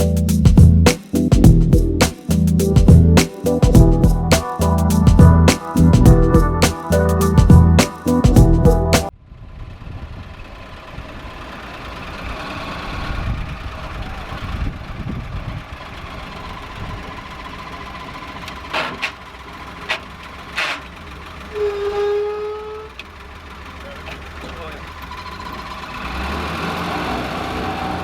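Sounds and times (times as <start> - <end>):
jeep engine rumbling: 0.0 - 9.1.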